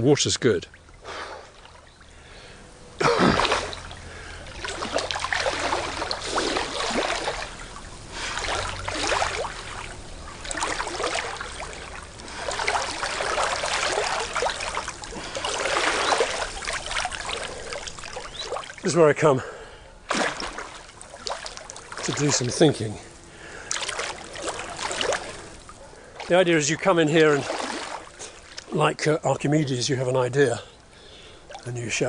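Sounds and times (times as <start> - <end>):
swimming splashing and sloshing: 0.0 - 32.0
water splash: 3.0 - 19.1, 20.0 - 28.8.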